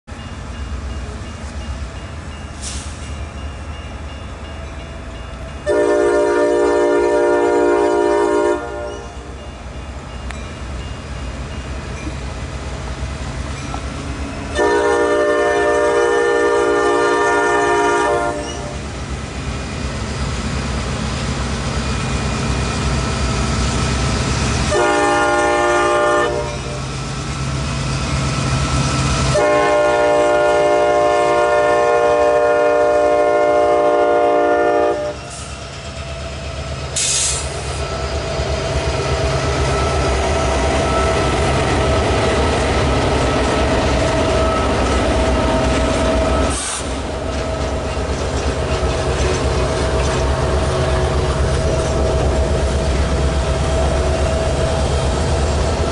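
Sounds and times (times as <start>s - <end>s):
locomotive air horn: 5.7s - 9.1s, 14.5s - 18.8s, 24.7s - 26.8s, 29.3s - 35.5s
brief hiss: 37.0s - 37.6s, 46.5s - 47.0s.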